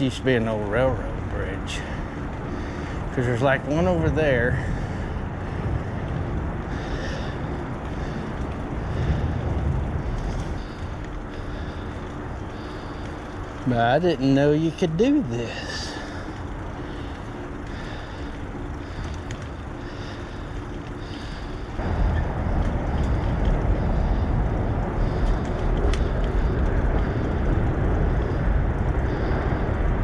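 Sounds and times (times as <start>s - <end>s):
bicycle tyre rumble: 0.0s - 30.0s
wind on microphone: 1.1s - 13.7s, 20.0s - 30.0s.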